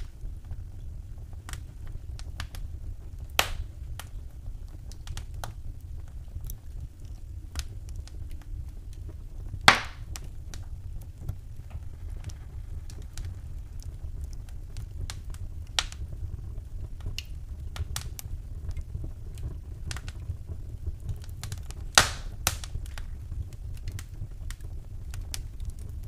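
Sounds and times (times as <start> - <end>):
wood fire crackling: 0.0 - 26.0
low rumble: 0.2 - 21.3
loud sharp pops: 3.4 - 3.6, 9.7 - 10.3, 22.0 - 22.7.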